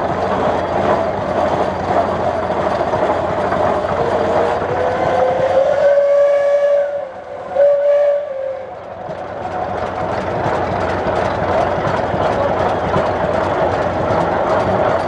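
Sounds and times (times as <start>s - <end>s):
steam engine running: 0.0s - 15.0s
steam engine whistle blasts: 4.1s - 8.8s.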